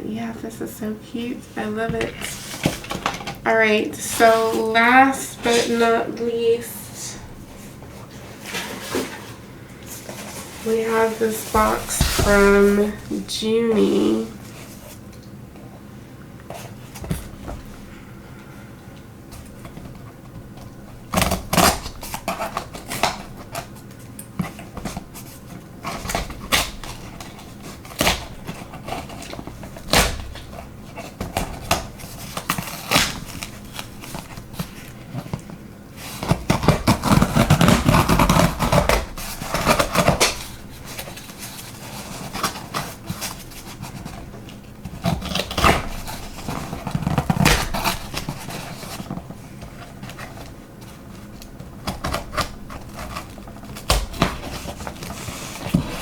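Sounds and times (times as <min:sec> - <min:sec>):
rustling packaging: 0:07.3 - 0:15.2, 0:19.3 - 0:56.0.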